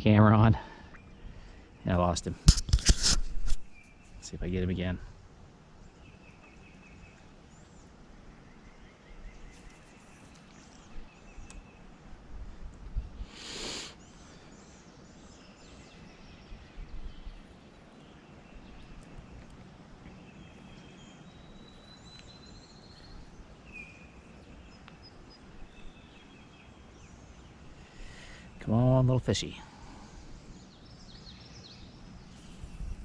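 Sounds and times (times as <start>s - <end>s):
outdoor background noise: 0.0s - 33.0s
small birds chirping: 0.0s - 33.0s
short loud hiss: 13.2s - 14.0s.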